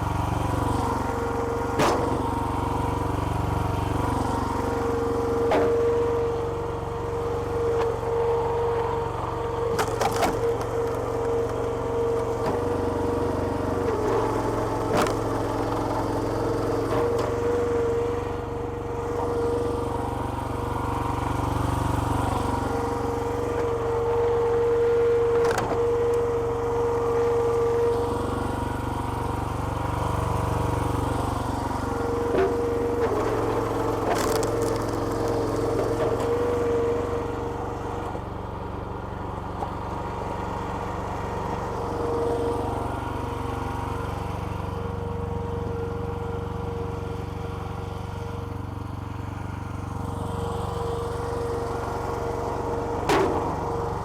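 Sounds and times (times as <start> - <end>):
hydraulic log splitter whine: 0.0 - 54.0
small petrol engine running: 0.0 - 54.0
wood splitting cracks: 1.8 - 2.8, 32.3 - 36.6, 53.0 - 54.0.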